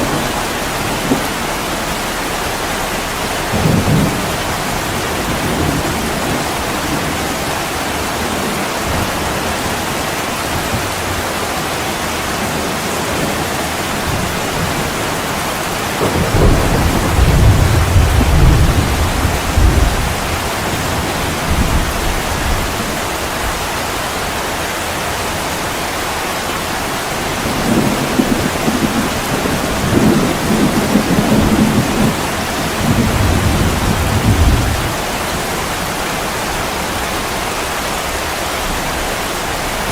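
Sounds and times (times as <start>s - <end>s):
rolling thunder: 0.0s - 11.8s, 12.4s - 23.6s, 27.0s - 39.9s
heavy rain on a window: 0.0s - 39.9s.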